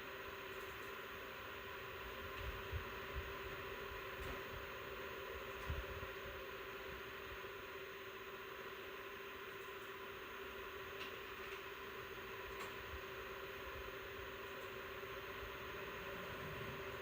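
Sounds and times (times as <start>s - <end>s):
fan whine: 0.0s - 17.0s
computer fans rushing: 11.0s - 17.0s.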